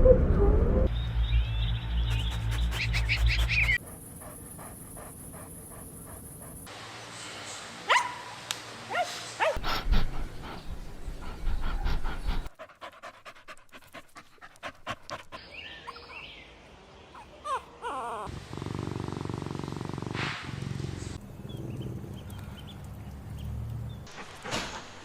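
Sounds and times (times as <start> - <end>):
puppies panting: 2.1 - 6.7, 9.0 - 16.4, 17.2 - 18.6
puppy high yelps: 7.9 - 8.2, 17.2 - 18.3.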